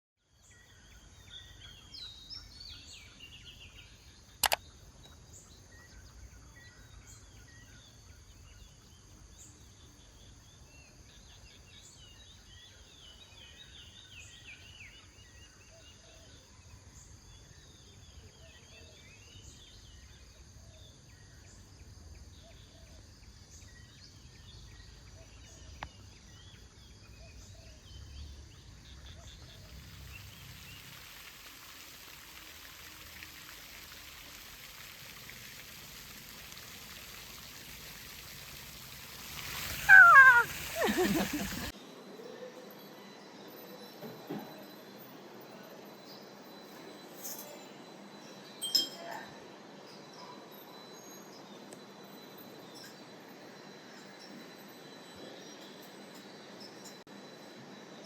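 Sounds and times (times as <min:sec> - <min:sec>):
insect drone: 0:00.3 - 0:48.7
birds chirping and calling: 0:39.6 - 0:41.7.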